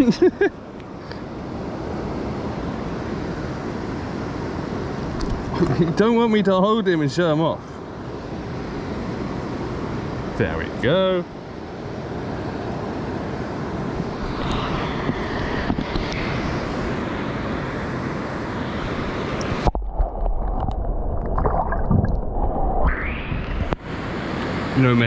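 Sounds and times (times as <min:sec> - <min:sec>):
wind noise on microphone: 0:13.9 - 0:17.5, 0:18.8 - 0:23.9
muffled underwater rumble and gurgles: 0:19.4 - 0:23.8.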